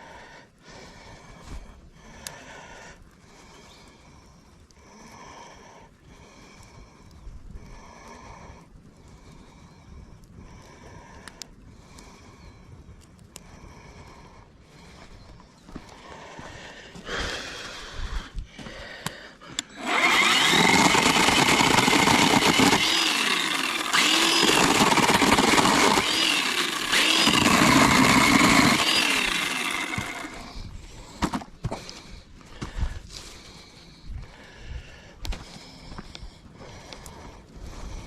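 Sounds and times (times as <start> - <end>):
small engine revving: 19.7 - 30.6.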